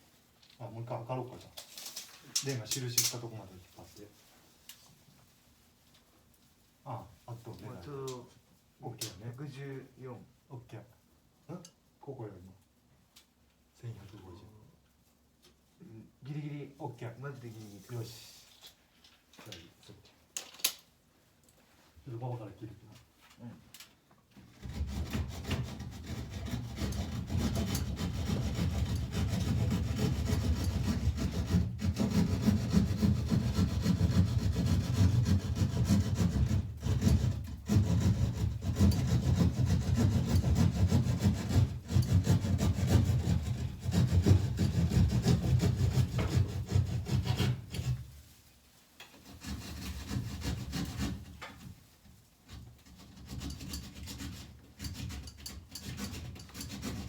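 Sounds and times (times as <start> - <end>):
hand saw rasping: 24.5 - 48.2, 49.1 - 51.7, 52.5 - 57.0.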